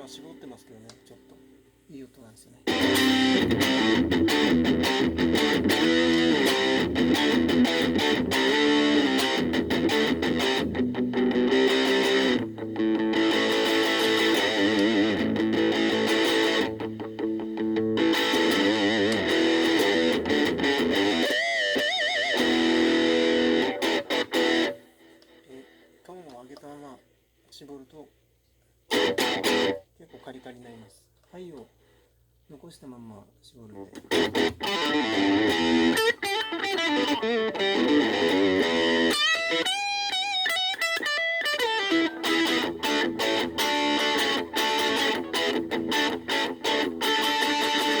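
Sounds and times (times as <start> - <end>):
electric guitar with vibrato: 2.7 - 25.8, 28.9 - 29.8, 34.1 - 48.0.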